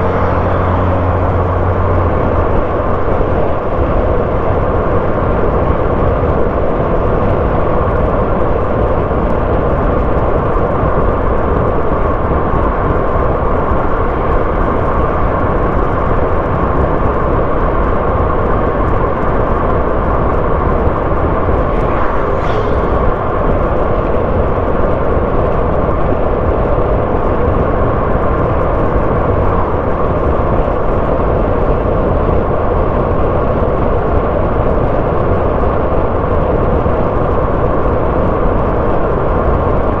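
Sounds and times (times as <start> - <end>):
car engine and tyre noise: 0.0 - 40.0
brief higher hiss: 21.5 - 23.6.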